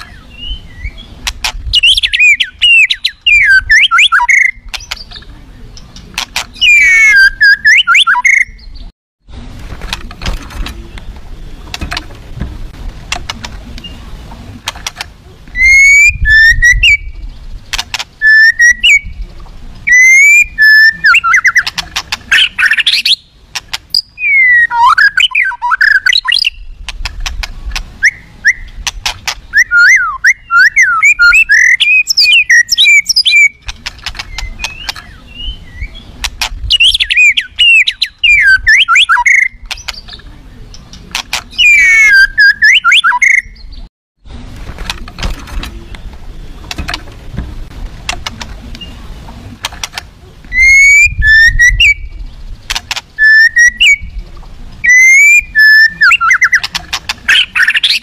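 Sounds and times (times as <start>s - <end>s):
songbird whistling and chattering: 0.0s - 8.9s, 15.5s - 26.9s, 28.0s - 43.9s, 50.5s - 52.2s, 53.1s - 54.2s, 54.8s - 58.0s.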